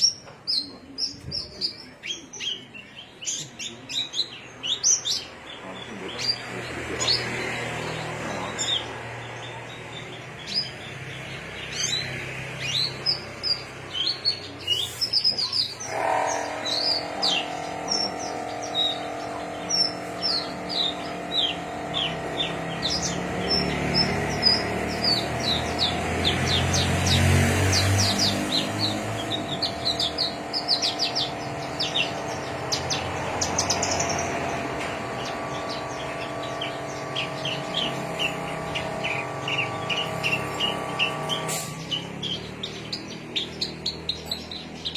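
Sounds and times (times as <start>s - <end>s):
songbird singing: 0.0s - 44.9s
hum of held tones: 15.8s - 27.0s.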